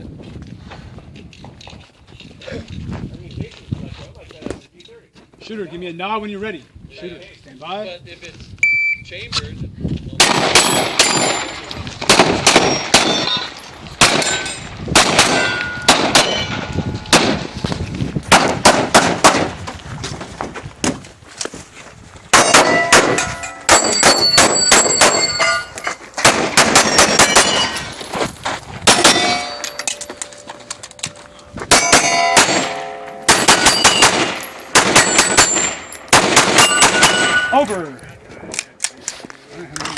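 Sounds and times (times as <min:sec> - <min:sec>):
pistol shots: 0:10.2 - 0:17.5, 0:18.3 - 0:19.6, 0:22.3 - 0:25.4, 0:26.2 - 0:27.8, 0:28.8 - 0:29.6, 0:31.7 - 0:37.6
steel targets clanging: 0:12.5 - 0:14.7, 0:15.3 - 0:17.1, 0:22.4 - 0:26.0, 0:26.8 - 0:28.0, 0:28.9 - 0:37.8.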